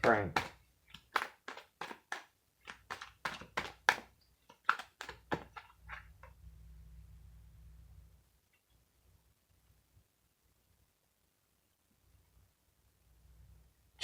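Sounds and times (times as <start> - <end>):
cards tapping and snapping: 0.0 - 6.4
faint low hum: 5.2 - 14.0.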